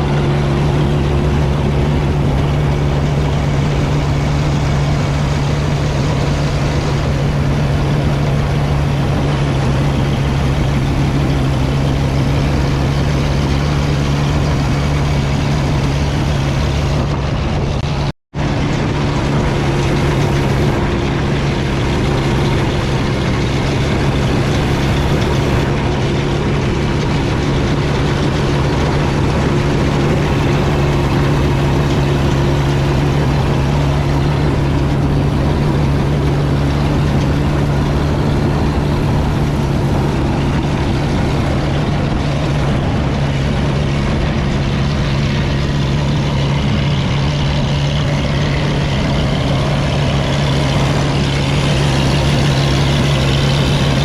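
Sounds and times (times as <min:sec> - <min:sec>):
continuous mechanical noise: 0:00.0 - 0:54.0
diesel tractor engine running: 0:00.0 - 0:54.0.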